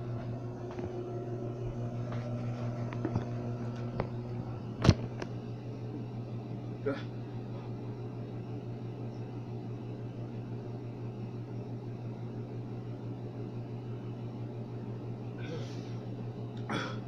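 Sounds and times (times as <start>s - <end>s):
appliance hum and hiss: 0.0s - 17.0s.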